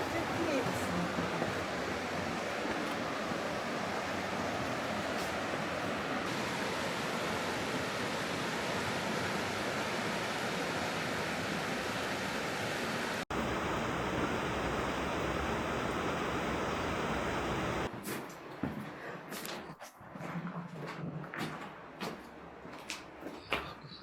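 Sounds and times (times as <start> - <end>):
rushing water: 0.0 - 17.9.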